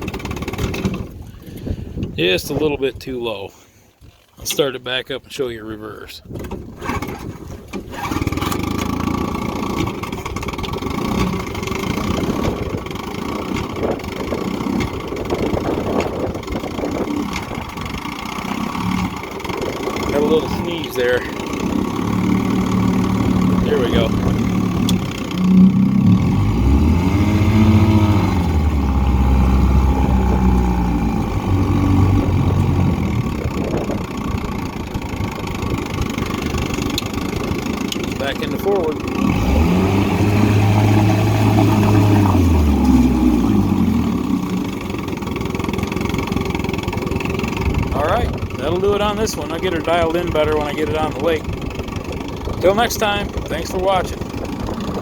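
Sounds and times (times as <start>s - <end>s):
outboard motor starting and running: 0.0s - 55.0s.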